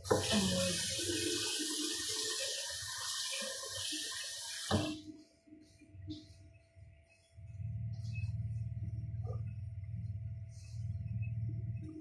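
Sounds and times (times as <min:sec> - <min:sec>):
tap running into sink: 0:00.0 - 0:05.1.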